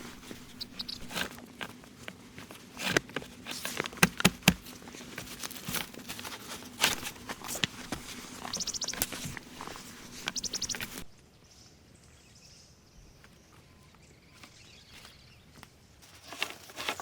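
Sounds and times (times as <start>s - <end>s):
bird chirping faintly: 0.0s - 1.1s, 8.4s - 15.7s
knocks taps and rustles of handling: 0.1s - 11.1s.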